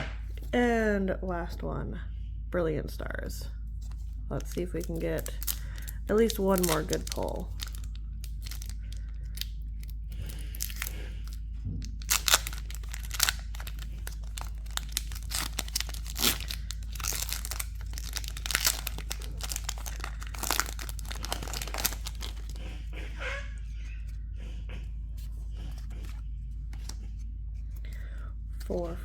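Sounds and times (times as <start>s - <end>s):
foil wrapper tearing and crinkling: 4.3s - 22.6s.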